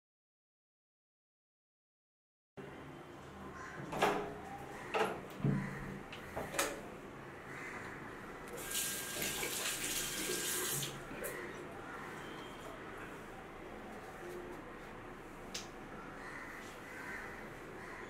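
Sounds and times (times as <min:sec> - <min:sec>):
sink tap running: 0:08.6 - 0:11.0.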